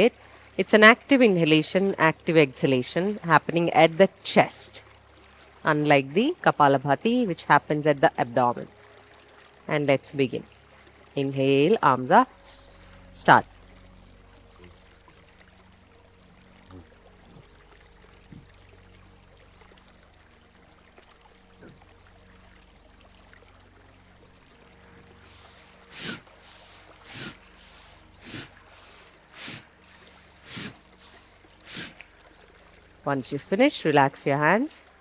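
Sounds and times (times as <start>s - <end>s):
stream trickling: 0.0s - 35.0s
forceful breaths through nose: 25.2s - 32.3s.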